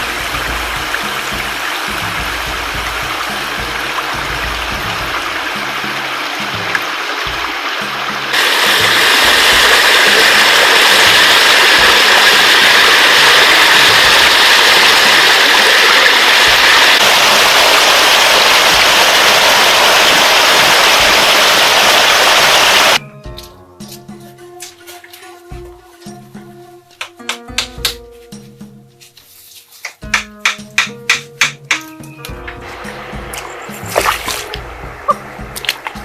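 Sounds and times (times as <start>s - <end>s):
background music: 0.0s - 15.5s, 23.0s - 36.0s
flowing water rushing: 0.0s - 23.0s, 32.6s - 36.0s.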